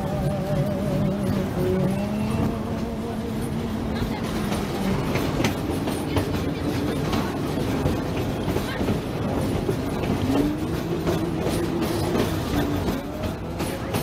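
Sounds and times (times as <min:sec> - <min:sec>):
train wheels on rails: 0:00.0 - 0:14.0
wheels clicking over rail joints: 0:00.0 - 0:14.0.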